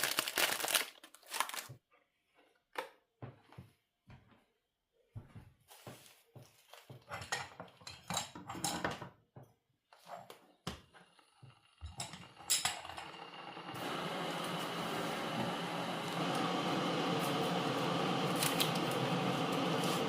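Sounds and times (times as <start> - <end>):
dishes and pans clinking: 7.0 - 9.1.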